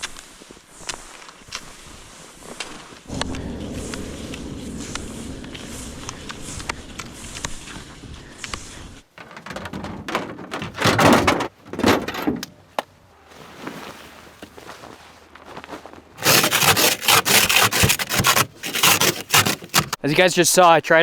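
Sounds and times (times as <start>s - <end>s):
frost guard rustling scrapes: 13.2s - 20.0s.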